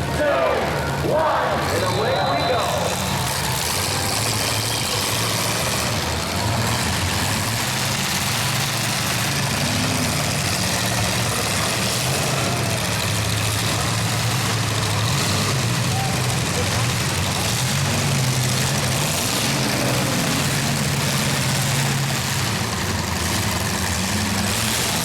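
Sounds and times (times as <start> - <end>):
car engines rumbling: 0.0 - 25.0.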